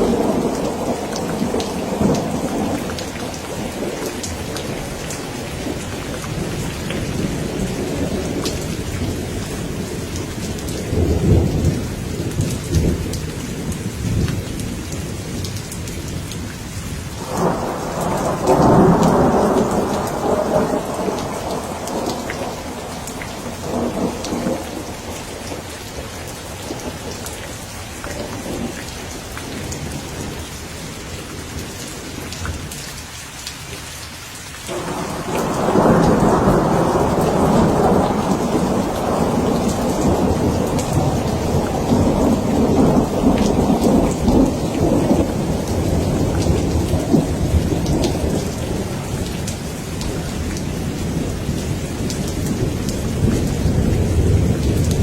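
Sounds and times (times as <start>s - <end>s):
thunder rumbling: 0.0s - 15.5s, 17.2s - 30.2s, 34.7s - 55.0s
steady rain falling: 0.0s - 55.0s.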